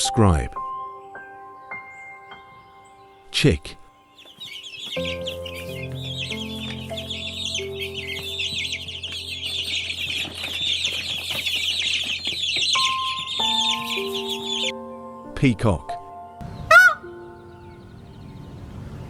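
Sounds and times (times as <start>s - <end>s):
chicks peeping: 2.5s - 14.7s, 16.4s - 19.0s.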